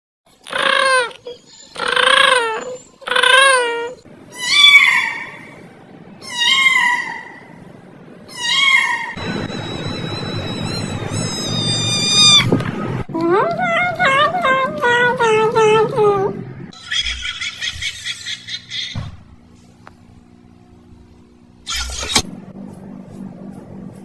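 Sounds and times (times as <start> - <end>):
steady high tone: 9.2 - 12.5
cat meowing: 11.2 - 12.5.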